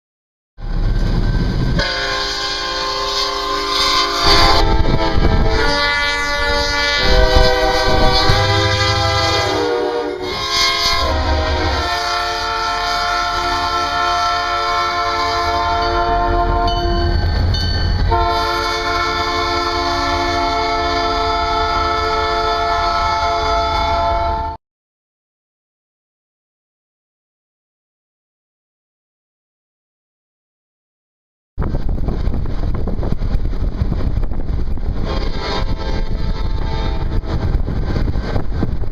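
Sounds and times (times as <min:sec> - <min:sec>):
train rumble: 0:00.6 - 0:24.6, 0:31.6 - 0:38.9
locomotive air horn: 0:01.8 - 0:17.4, 0:18.1 - 0:24.6, 0:35.0 - 0:37.6.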